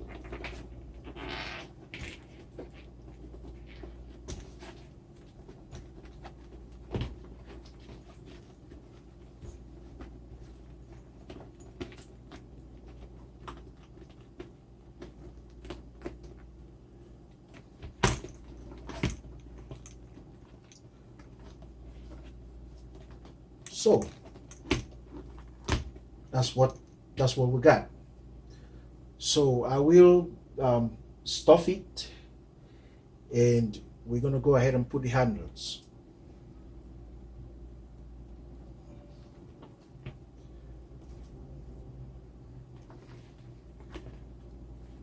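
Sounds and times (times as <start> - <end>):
leather handbag rustling and clicking: 0.0 - 27.0, 42.7 - 45.0
steady low hum: 0.0 - 45.0.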